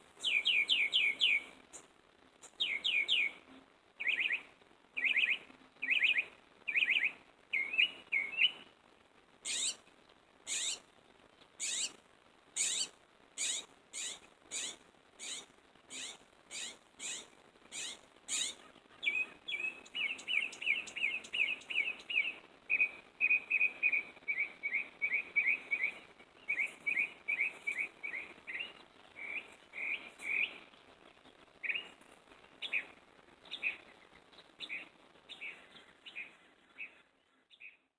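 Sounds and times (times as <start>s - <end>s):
mockingbird singing: 0.2s - 1.5s, 2.4s - 3.4s, 9.4s - 9.8s, 10.5s - 10.8s, 11.6s - 12.0s, 12.6s - 30.5s.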